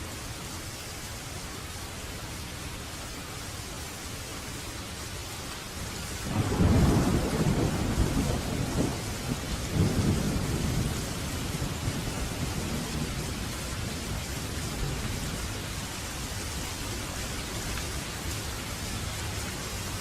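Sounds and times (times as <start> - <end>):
steady rain hiss: 0.0 - 20.0
thunder rumbling: 6.2 - 15.8.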